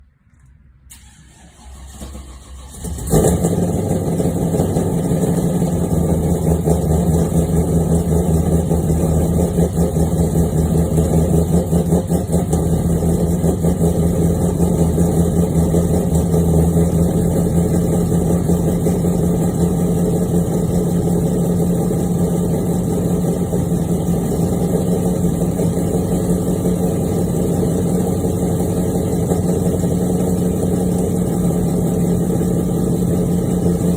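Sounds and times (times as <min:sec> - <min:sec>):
car engine cranking: 0:00.9 - 0:05.5
engine fast idle: 0:00.9 - 0:33.9.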